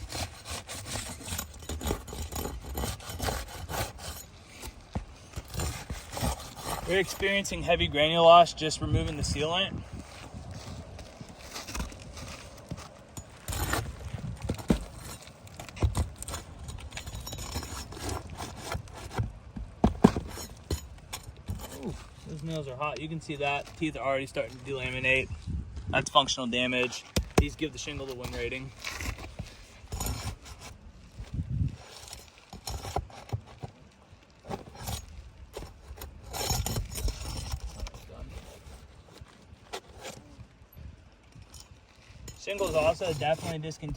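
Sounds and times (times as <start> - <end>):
flat bar scraping under shingle: 0.0 - 25.4, 26.0 - 40.6, 41.4 - 43.9.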